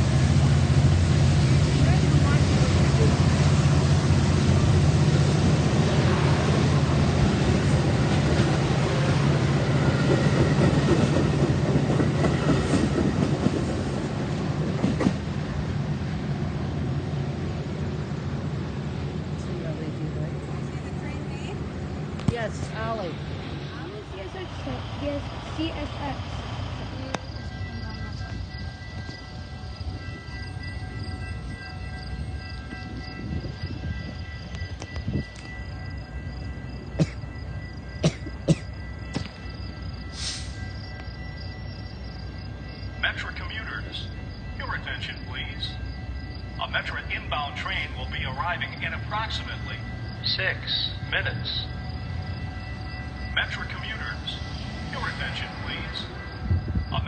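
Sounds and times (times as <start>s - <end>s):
train rumbling past: 0.0s - 57.0s
steady high tones: 22.4s - 57.0s.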